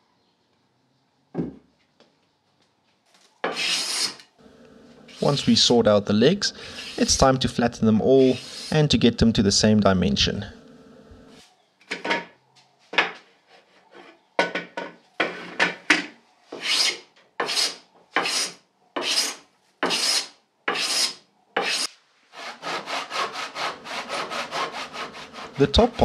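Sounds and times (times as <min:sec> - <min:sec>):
hand tool rasping wood: 0:16.6 - 0:26.0.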